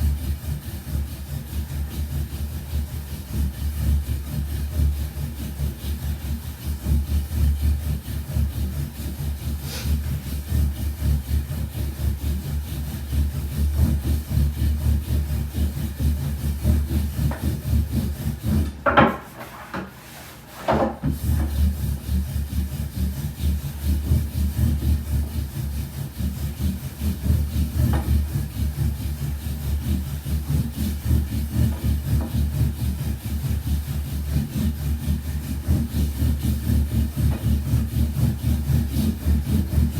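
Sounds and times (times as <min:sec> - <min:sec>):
rolling pin rolling dough: 0:00.0 - 0:39.9
sharp wooden knocks: 0:18.6 - 0:19.9.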